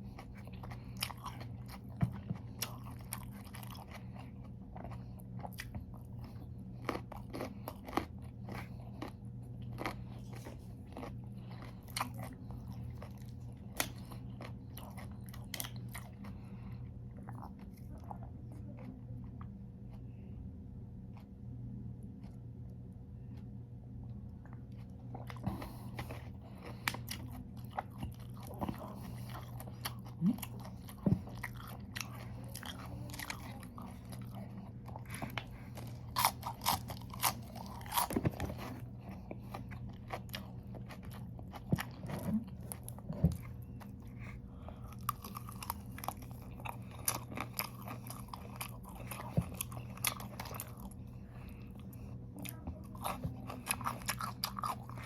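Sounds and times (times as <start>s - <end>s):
steady low hum: 0.0s - 55.0s
crunching raw vegetables: 24.6s - 55.0s.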